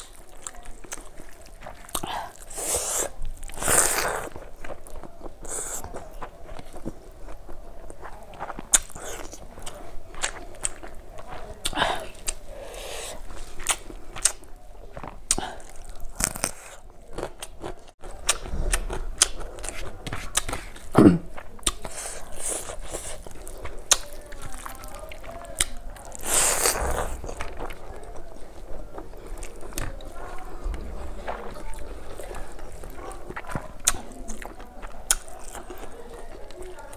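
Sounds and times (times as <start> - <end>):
wet chewing and smacking: 0.0 - 36.9
breathy rush: 11.7 - 13.5.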